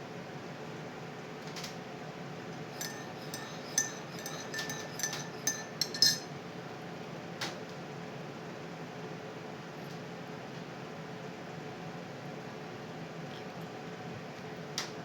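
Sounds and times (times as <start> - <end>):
spoon clinking in a cup: 2.8 - 6.4.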